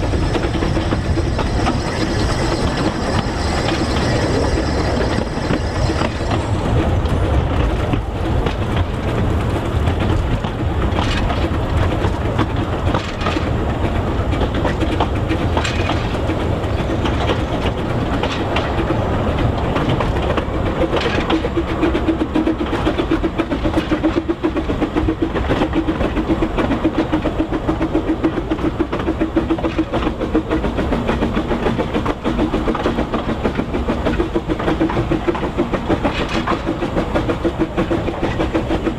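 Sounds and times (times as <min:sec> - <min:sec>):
steady pulsing hum: 0:00.0 - 0:07.6
train wheels clattering on track: 0:00.0 - 0:38.9.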